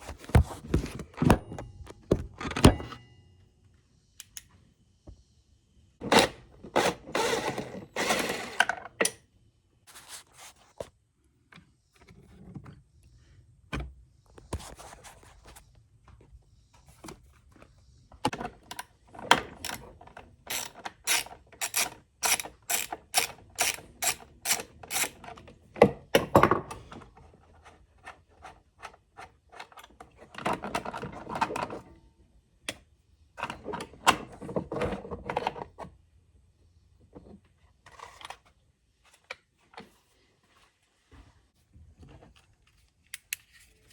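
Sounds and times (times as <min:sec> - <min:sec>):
ratchet wrench clicking: 0:20.5 - 0:25.1.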